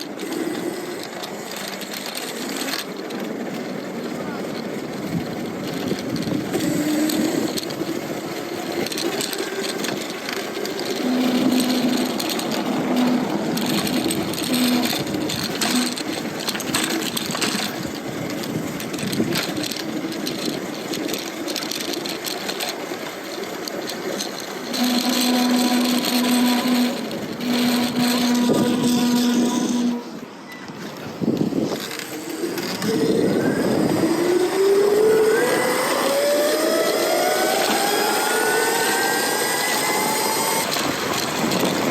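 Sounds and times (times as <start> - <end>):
road noise: 0.0 - 41.9
wind: 0.0 - 41.9
electric motor hum: 8.6 - 17.8, 23.8 - 30.3, 31.2 - 41.9.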